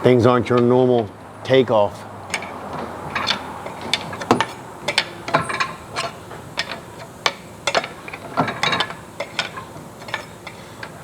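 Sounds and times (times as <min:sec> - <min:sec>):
hand tools clanking on metal: 0:00.0 - 0:11.0.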